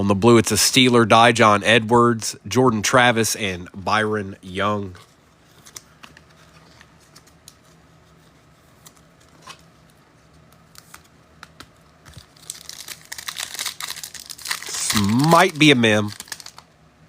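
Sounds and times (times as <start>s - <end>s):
trading cards handled: 4.9s - 16.7s
plastic wrapper crinkling: 10.6s - 16.8s.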